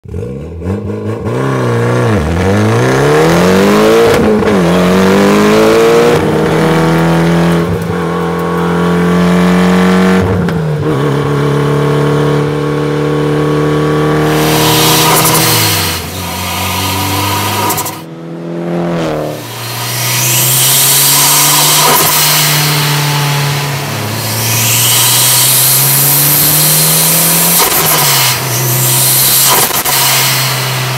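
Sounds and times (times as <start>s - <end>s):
car engine accelerating through gears: 0.0s - 30.9s.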